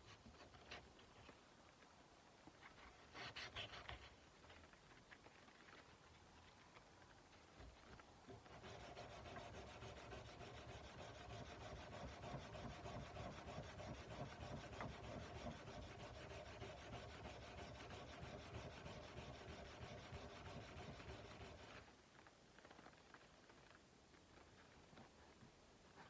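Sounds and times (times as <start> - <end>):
sandpaper rubbing on a blade: 8.4 - 21.8.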